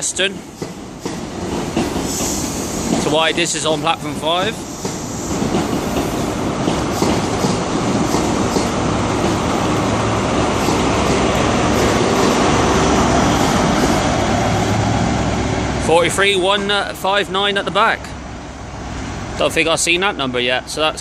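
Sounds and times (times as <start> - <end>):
train wheels clicking over rail joints: 0.0 - 14.8
low diesel engine drone: 2.6 - 20.8.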